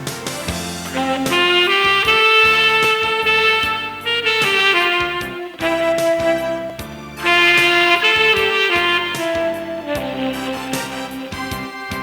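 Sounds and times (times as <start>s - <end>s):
backing track with drum beat: 0.0s - 12.0s
tenor saxophone ballad melody: 0.0s - 12.0s.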